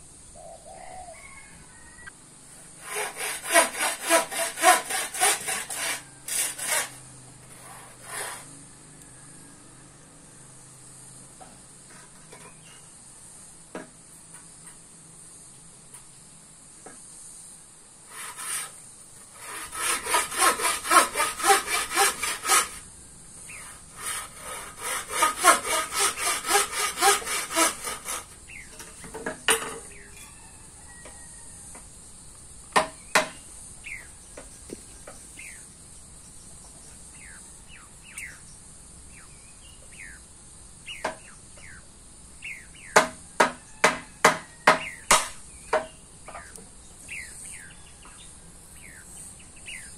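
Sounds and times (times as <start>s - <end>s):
saw strokes: 2.7s - 8.6s, 18.1s - 22.9s, 23.5s - 28.4s
sharp knocks: 32.7s - 33.4s, 42.9s - 46.4s.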